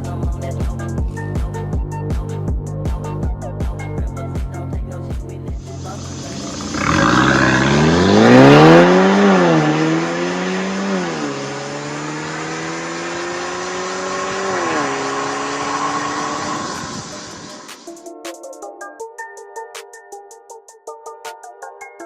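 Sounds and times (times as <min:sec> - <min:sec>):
car engine accelerating hard: 0:05.6 - 0:17.8.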